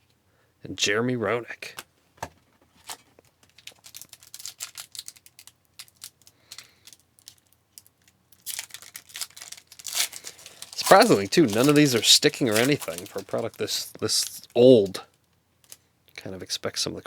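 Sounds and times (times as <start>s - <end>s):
trading cards flipped by hand: 8.6s - 15.0s.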